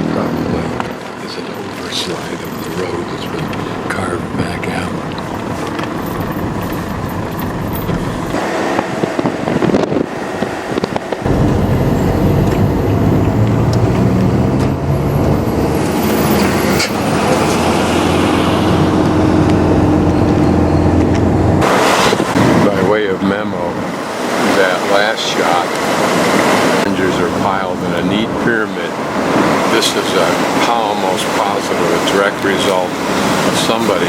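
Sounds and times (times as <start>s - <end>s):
vehicle engine running: 0.0s - 24.4s
loud steady engine hum: 0.0s - 34.0s
road noise: 0.0s - 34.0s.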